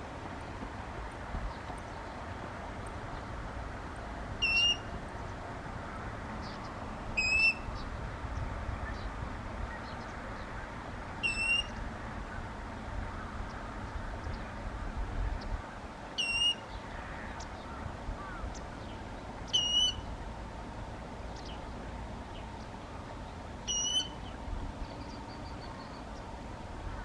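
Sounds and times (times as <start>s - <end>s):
steady outdoor hiss: 0.0s - 27.0s
water rail calling: 4.3s - 5.0s, 6.8s - 7.8s.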